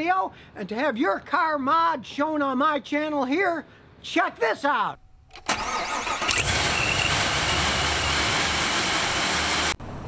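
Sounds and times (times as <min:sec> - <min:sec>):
car engine starting and running: 0:05.4 - 0:10.0
high supercharger whine: 0:06.2 - 0:10.0.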